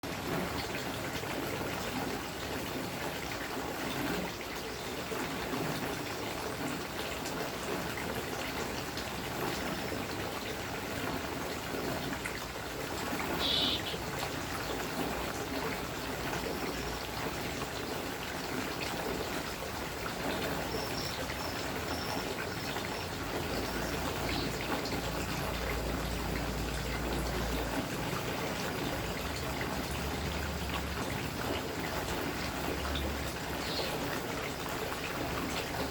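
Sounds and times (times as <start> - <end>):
water trickling: 0.0 - 35.9
bird chirping: 13.4 - 14.0, 20.7 - 24.6, 33.6 - 34.0
short high bird peeps: 13.4 - 14.0.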